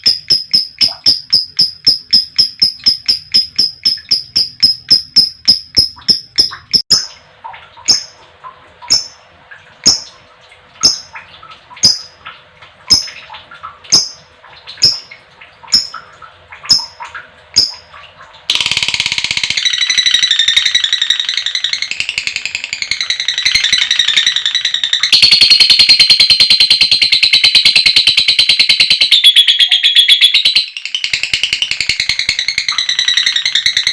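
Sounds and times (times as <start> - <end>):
lovebird chirping and trilling: 0.0 - 7.0, 8.9 - 9.2, 14.8 - 15.1, 15.7 - 16.0, 16.7 - 17.0, 18.5 - 33.9.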